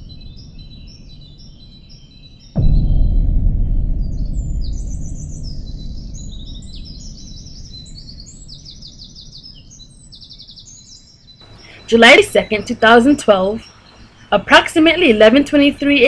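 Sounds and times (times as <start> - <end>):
birds chirping and trilling: 0.0 - 2.7, 4.1 - 16.0
deep rumble: 0.0 - 10.8.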